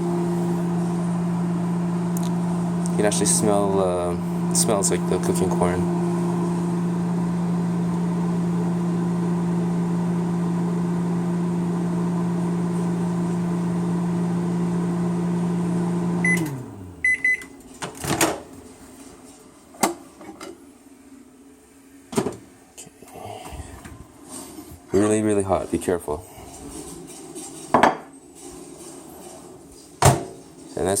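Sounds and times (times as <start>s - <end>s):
microwave oven humming: 0.0s - 17.7s
microwave beeps: 16.1s - 17.6s.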